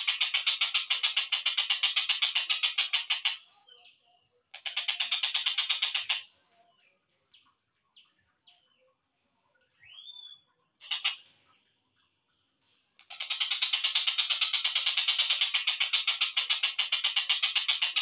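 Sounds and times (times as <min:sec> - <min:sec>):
kingfisher rattling call: 0:00.0 - 0:03.4, 0:04.6 - 0:06.2, 0:10.8 - 0:11.2, 0:13.0 - 0:18.0
faint bird chirps: 0:03.2 - 0:15.5.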